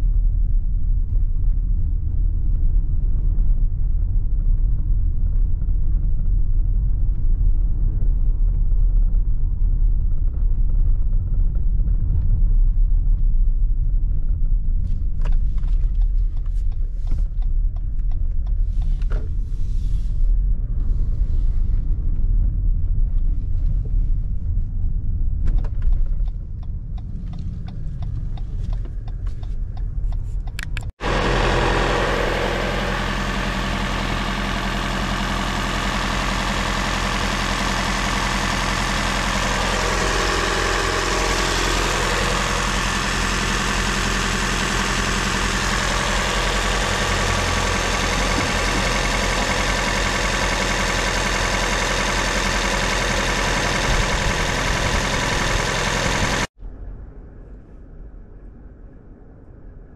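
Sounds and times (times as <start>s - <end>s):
car engine idling: 30.5s - 56.5s.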